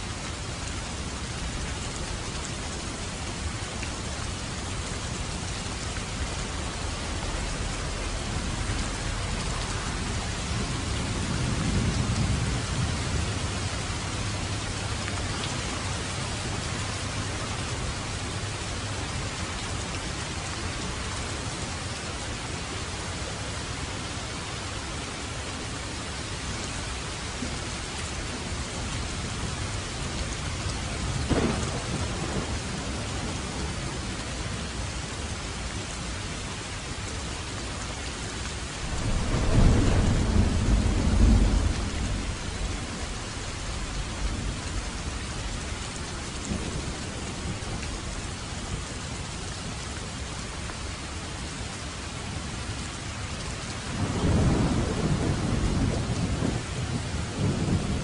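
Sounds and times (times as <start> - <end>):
steady rain falling: 0.0 - 58.0
low thunder rumble: 5.1 - 17.0, 28.8 - 34.7, 38.8 - 48.3, 53.8 - 58.0
thunder crack: 31.3 - 32.6, 38.8 - 42.4.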